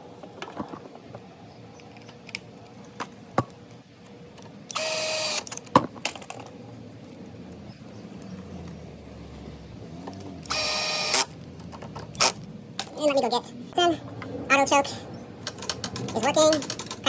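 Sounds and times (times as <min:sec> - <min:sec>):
tools and metal parts clicking: 0:15.4 - 0:17.0.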